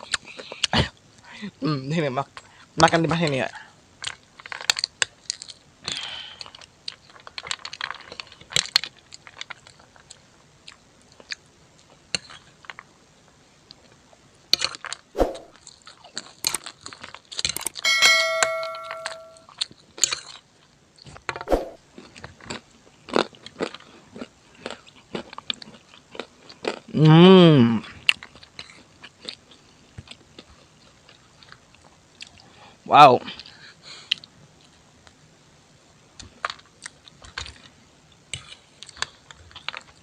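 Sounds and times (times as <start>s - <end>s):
bell-like ding: 17.6s - 19.4s
person chewing food: 22.0s - 26.9s, 27.8s - 32.4s.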